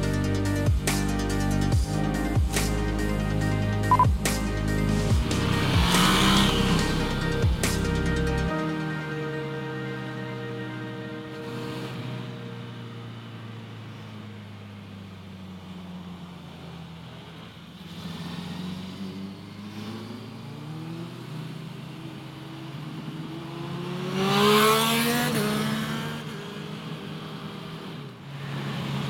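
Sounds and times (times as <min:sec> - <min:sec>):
motorcycle engine accelerating: 0:00.0 - 0:08.6, 0:17.2 - 0:29.0.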